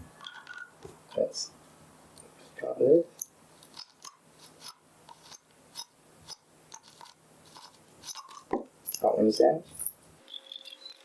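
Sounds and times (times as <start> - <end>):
screwdriver clicks and scrapes: 3.2 - 9.1.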